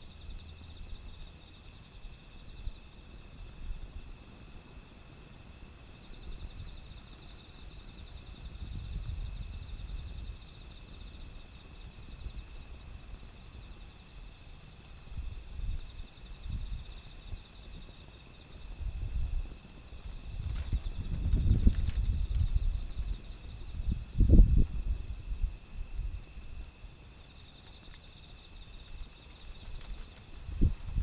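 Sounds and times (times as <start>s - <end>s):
insects trilling: 0.0s - 31.0s
wind gusts on microphone: 8.2s - 10.6s, 15.1s - 26.8s, 29.6s - 31.0s.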